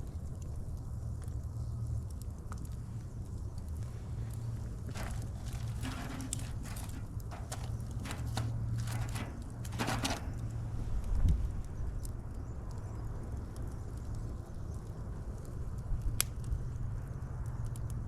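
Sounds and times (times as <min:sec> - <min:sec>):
wood fire crackling: 0:01.2 - 0:11.0.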